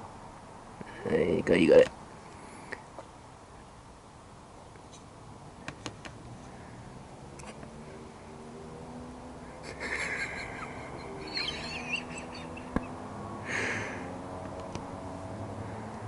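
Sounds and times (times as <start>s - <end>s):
bird chirping: 10.2s - 13.0s.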